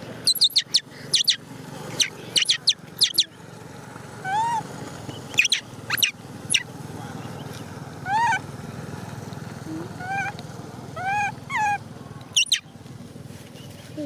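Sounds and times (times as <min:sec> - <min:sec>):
sharp high squeals: 0:00.3 - 0:01.4, 0:05.4 - 0:06.7, 0:12.4 - 0:12.6
young monkey whimpering calls: 0:00.3 - 0:01.4, 0:02.0 - 0:03.4, 0:04.2 - 0:04.7, 0:05.4 - 0:06.7, 0:08.0 - 0:08.5, 0:09.7 - 0:12.6.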